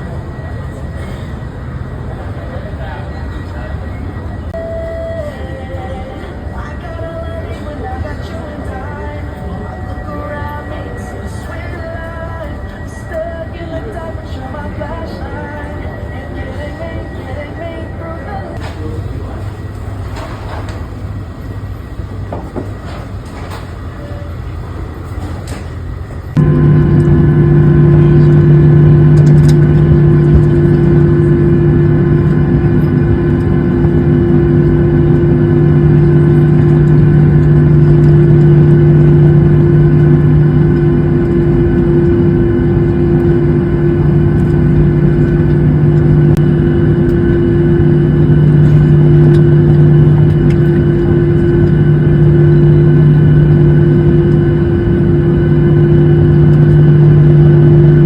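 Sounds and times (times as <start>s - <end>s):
engine drone: 22.8s - 58.0s.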